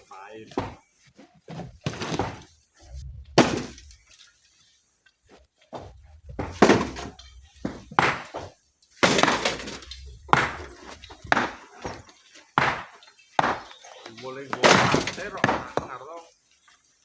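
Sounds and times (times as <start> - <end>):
rocks crashing together: 1.5 - 4.2, 5.8 - 16.1.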